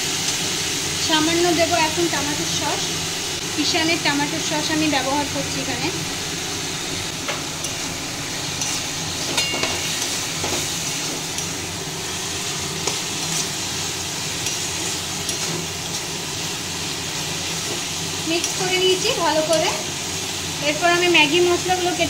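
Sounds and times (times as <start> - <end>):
vegetables sizzling in a wok: 0.0 - 22.0
spatula scraping and clicking on pan: 8.5 - 11.6, 12.8 - 13.6, 14.4 - 16.1.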